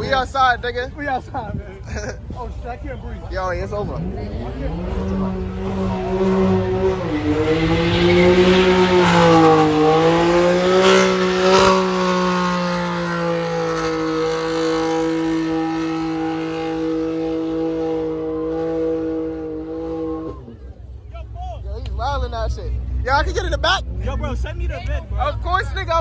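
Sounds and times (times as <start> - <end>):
car engine revving high: 3.7 - 20.7.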